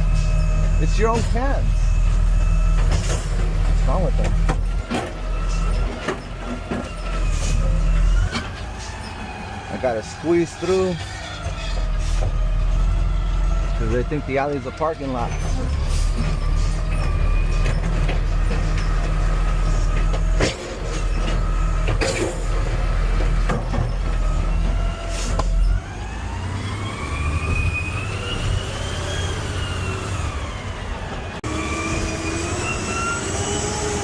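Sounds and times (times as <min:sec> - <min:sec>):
truck clunks: 0:00.0 - 0:09.3, 0:10.6 - 0:13.8, 0:14.9 - 0:28.6
diesel engine revving: 0:00.0 - 0:34.0.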